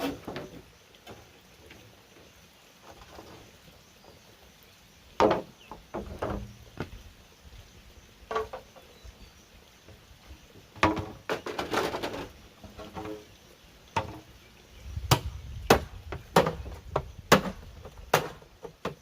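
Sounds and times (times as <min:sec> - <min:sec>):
bamboo knocking and clattering: 0:00.0 - 0:01.8, 0:05.2 - 0:07.0, 0:08.3 - 0:08.9, 0:10.7 - 0:13.3, 0:13.9 - 0:14.4, 0:15.0 - 0:19.0.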